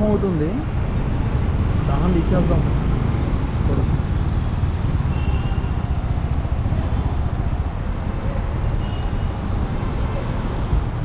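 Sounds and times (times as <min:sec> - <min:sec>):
motorcycle engine rumble: 0:00.0 - 0:11.0
wind on microphone: 0:02.9 - 0:04.5.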